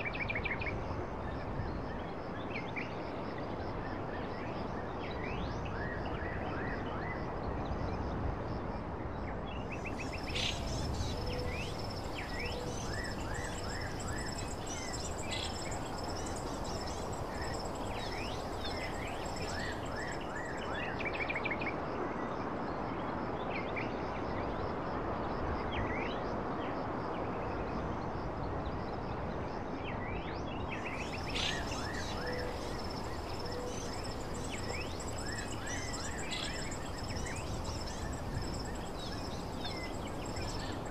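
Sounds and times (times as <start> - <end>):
insects trilling: 9.7 - 21.1, 30.8 - 40.9
birds chirping: 9.8 - 20.6, 31.0 - 40.9
steady rushing background: 10.0 - 20.3, 31.0 - 40.9.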